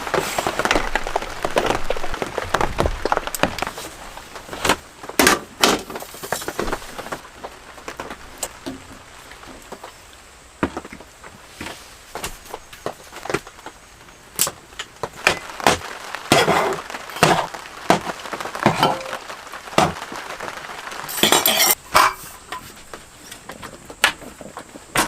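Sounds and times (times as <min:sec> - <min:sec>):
hard objects clinking and knocking: 0:21.1 - 0:22.6.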